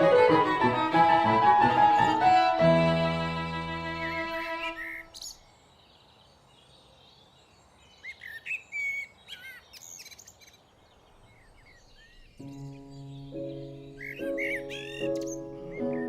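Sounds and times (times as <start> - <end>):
music with sustained notes: 0.0 - 5.2, 12.3 - 16.0
songbirds chirping: 0.0 - 16.0.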